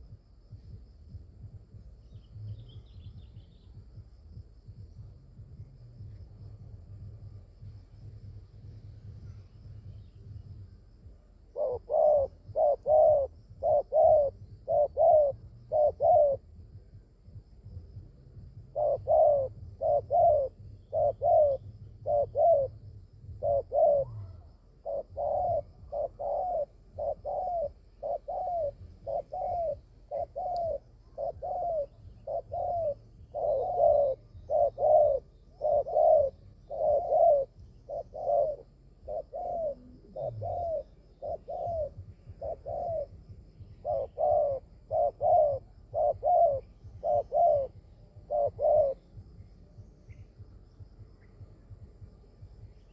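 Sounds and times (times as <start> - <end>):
dove cooing: 11.0 - 52.9.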